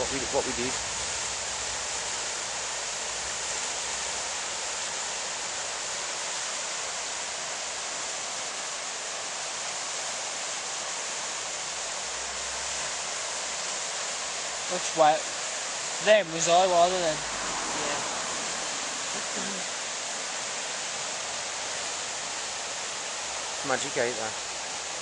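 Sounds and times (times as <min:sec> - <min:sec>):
river rapids rushing: 0:00.0 - 0:25.0.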